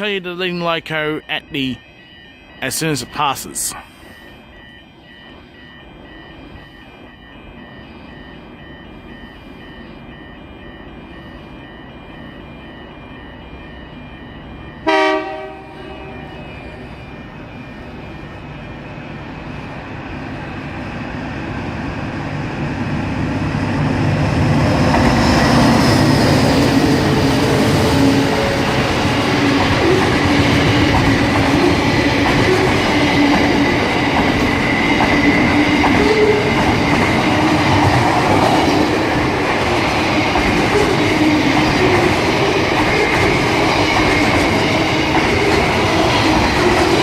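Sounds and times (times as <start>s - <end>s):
freight train rumbling past: 7.4s - 47.0s
train horn blast: 14.8s - 16.8s.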